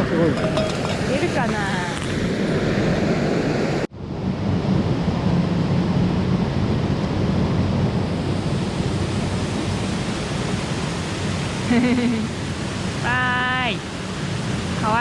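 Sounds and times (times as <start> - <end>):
mountain stream flowing: 0.0 - 2.6, 8.1 - 15.0.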